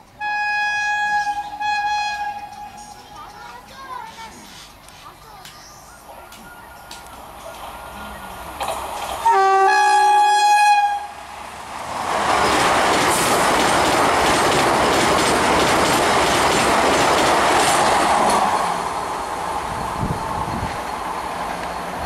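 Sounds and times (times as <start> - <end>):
train wheels on rails: 0.0 - 10.6, 11.2 - 22.0
train horn: 0.2 - 2.9, 9.2 - 11.2.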